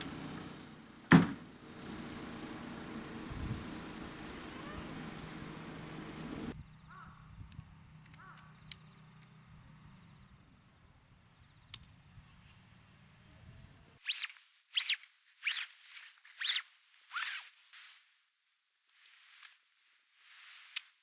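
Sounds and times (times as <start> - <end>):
faint outdoor background: 0.0 - 21.0
tent zipper rasping: 14.0 - 17.9.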